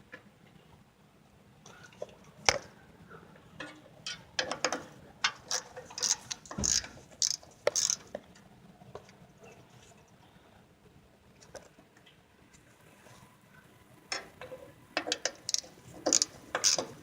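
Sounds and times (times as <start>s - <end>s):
hand ratchet clicking: 5.5s - 8.0s, 15.5s - 16.9s.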